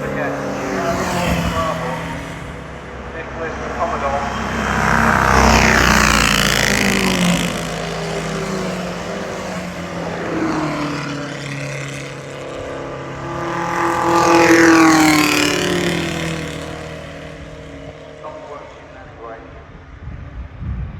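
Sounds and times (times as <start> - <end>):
racing cars passing by: 0.0 - 20.6.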